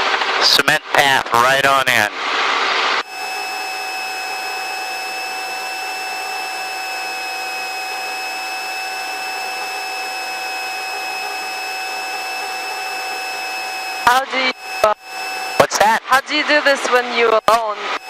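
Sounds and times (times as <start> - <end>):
high helicopter whine: 0.0 - 18.0
helicopter intercom hiss: 0.4 - 2.1, 9.6 - 18.0.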